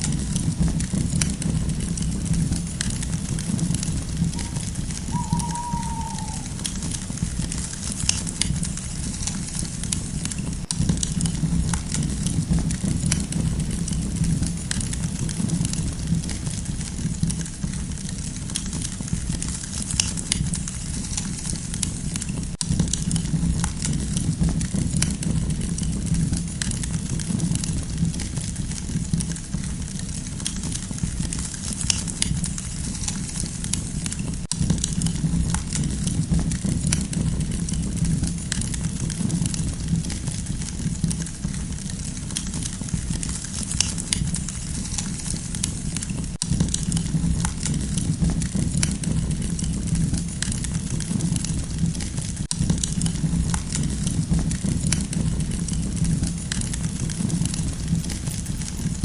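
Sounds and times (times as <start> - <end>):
campfire crackling and popping: 0.0 - 17.4, 52.5 - 59.0
fire low rumble: 0.0 - 18.1, 46.6 - 59.0.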